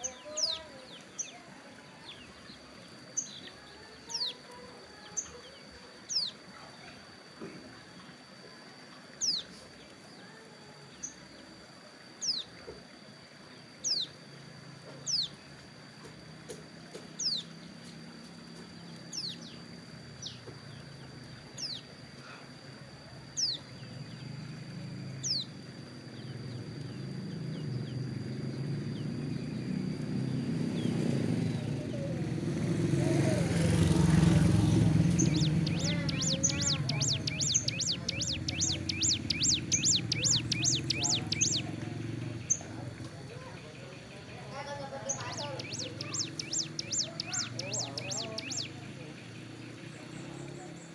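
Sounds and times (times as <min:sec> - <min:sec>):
bird sharp downward calls: 0:00.0 - 0:06.4, 0:13.8 - 0:14.2, 0:15.0 - 0:15.5, 0:16.9 - 0:17.8, 0:23.3 - 0:49.1
bird rapid chirps: 0:17.1 - 0:17.6, 0:32.6 - 0:42.8, 0:44.8 - 0:48.9
vehicle passing: 0:26.1 - 0:50.9.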